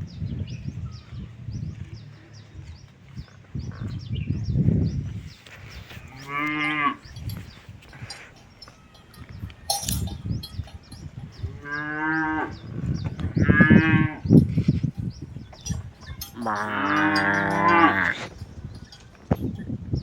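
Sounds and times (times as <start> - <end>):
cattle mooing: 6.1 - 7.2, 11.6 - 12.7, 16.2 - 18.3.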